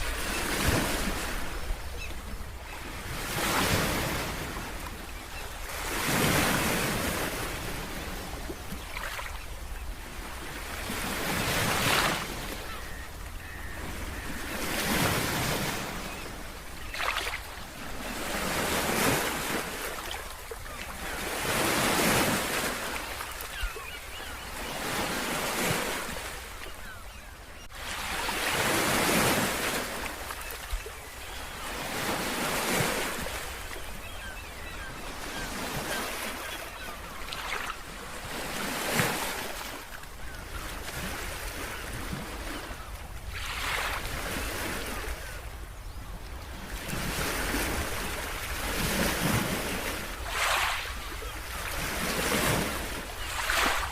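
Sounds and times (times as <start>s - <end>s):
ocean waves breaking on shore: 0.0s - 53.9s.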